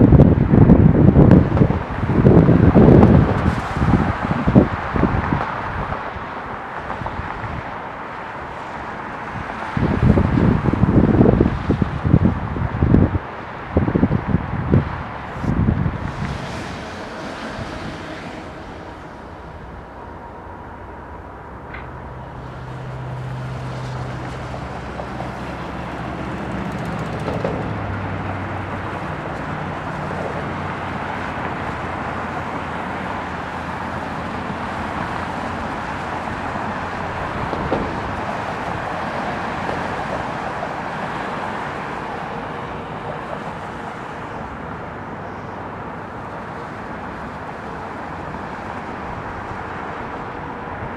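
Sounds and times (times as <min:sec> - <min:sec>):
jet engine roar: 0:13.8 - 0:50.9.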